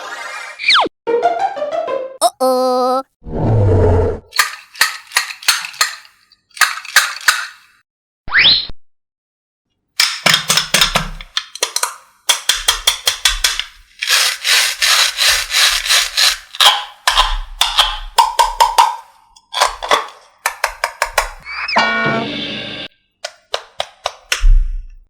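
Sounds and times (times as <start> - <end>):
rapid clicking and clattering taps: 20.5 - 21.4.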